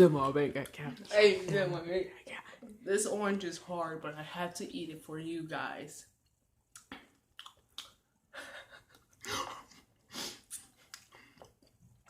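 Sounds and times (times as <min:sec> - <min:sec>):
person chewing orange: 0:06.2 - 0:08.1, 0:08.9 - 0:12.0.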